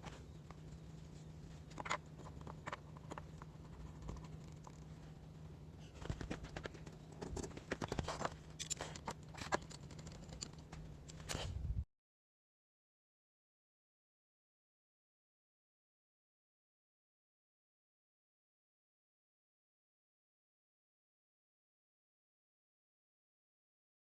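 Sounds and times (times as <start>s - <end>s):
small clicks and scratching: 0.0s - 5.2s, 5.8s - 11.6s
low hum: 0.0s - 11.9s.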